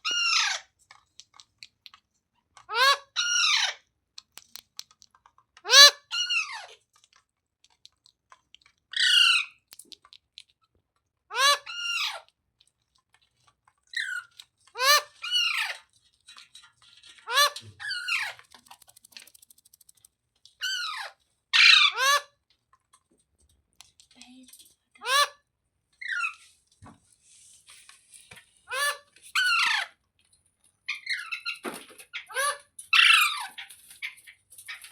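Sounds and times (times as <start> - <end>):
parrot squawking: 0.0 - 0.7, 2.7 - 3.8, 5.7 - 6.8, 9.0 - 9.6, 11.3 - 12.2, 13.9 - 15.8, 17.1 - 18.8, 20.6 - 22.3, 25.0 - 25.4, 28.7 - 29.9, 32.2 - 33.6.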